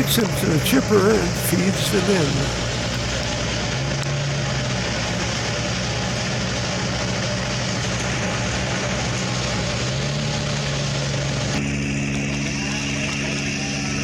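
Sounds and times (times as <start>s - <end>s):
wood chipper engine running: 0.0s - 14.0s.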